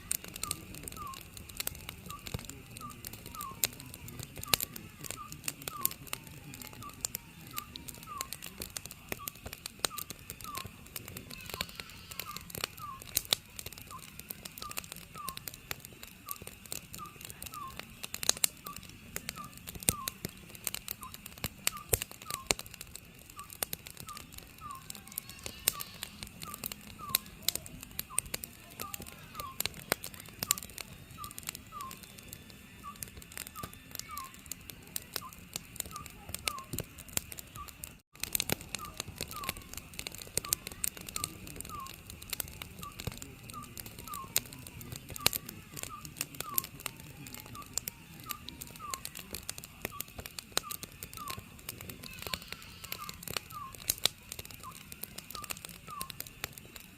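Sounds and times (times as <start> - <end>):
wood fire crackling and popping: 0.0 - 56.9
owl hooting: 0.2 - 1.3, 2.0 - 15.5, 16.3 - 17.8, 18.6 - 20.4, 23.4 - 32.1, 32.8 - 34.6, 38.7 - 42.1, 47.6 - 49.1, 49.8 - 53.9, 54.6 - 56.2.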